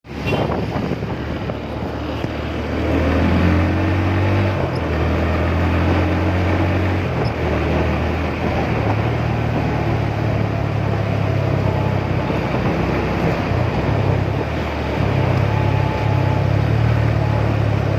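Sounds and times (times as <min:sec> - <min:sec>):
wind and road noise: 0:00.0 - 0:17.9
motorcycle engine running: 0:00.2 - 0:17.9.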